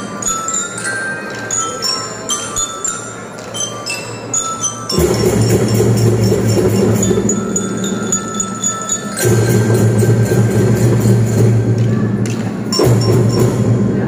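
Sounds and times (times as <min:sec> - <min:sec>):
ringing bell-like metal notes: 0:00.0 - 0:14.0
children's drum band playing: 0:04.9 - 0:14.0.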